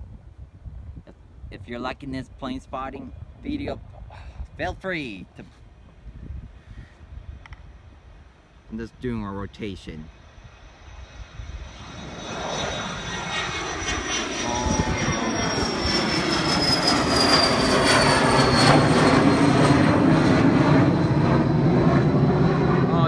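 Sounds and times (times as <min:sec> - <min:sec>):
airplane engine noise: 0:00.0 - 0:23.0
high whine falling in pitch: 0:10.6 - 0:23.0.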